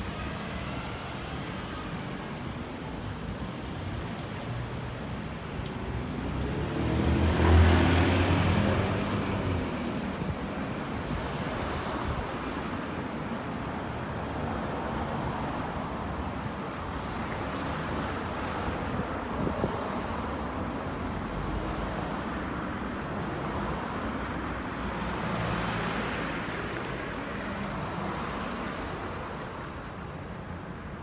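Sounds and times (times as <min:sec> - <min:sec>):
street traffic noise: 0:00.0 - 0:31.0
vehicle passing close by: 0:06.0 - 0:10.1.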